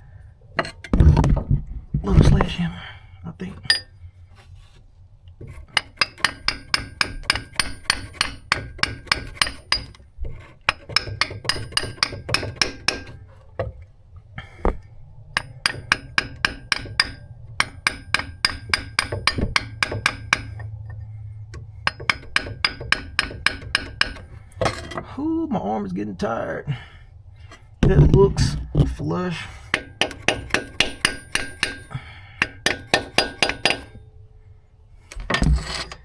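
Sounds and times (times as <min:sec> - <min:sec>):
hammer tapping on metal: 0:05.7 - 0:10.0, 0:10.7 - 0:13.2, 0:15.4 - 0:20.7, 0:21.8 - 0:24.3, 0:29.7 - 0:34.0.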